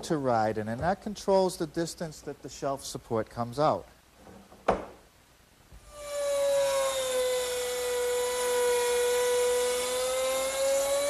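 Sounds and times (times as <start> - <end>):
router cutting wood: 5.9 - 11.0.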